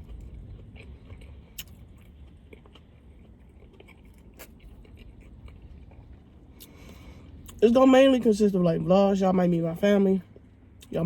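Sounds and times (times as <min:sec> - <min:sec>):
person chewing food: 0:00.0 - 0:07.6
low steady hum: 0:00.0 - 0:11.0.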